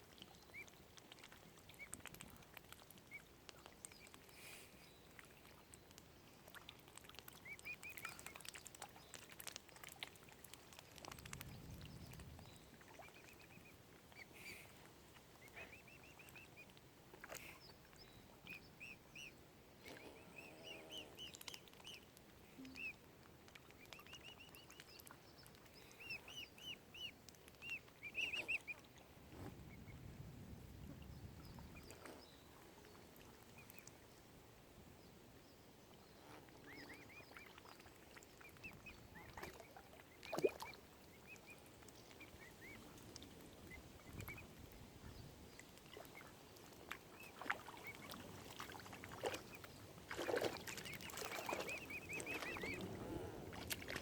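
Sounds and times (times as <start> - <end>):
cygnets peeping: 10.7 - 23.0, 23.6 - 28.8, 36.5 - 45.3, 47.1 - 54.0.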